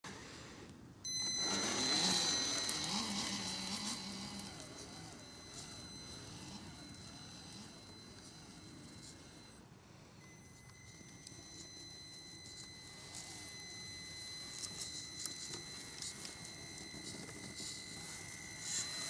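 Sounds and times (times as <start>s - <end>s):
low motor hum: 1.1s - 9.6s
electric motor whine: 1.1s - 19.0s.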